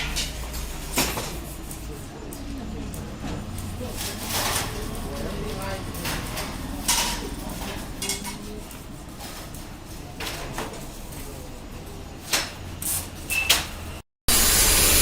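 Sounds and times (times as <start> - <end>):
hard parts knocking and clattering: 3.1 - 11.1
loud steady hiss: 14.3 - 15.0.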